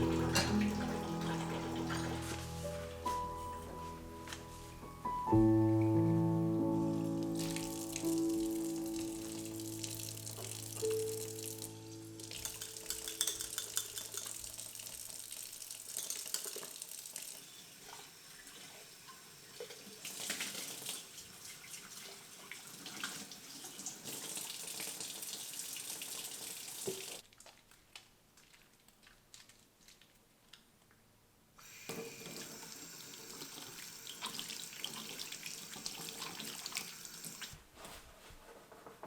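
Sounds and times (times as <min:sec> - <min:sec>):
tap water running into sink: 0:00.0 - 0:02.4, 0:07.4 - 0:11.5, 0:12.3 - 0:27.2, 0:31.6 - 0:37.6.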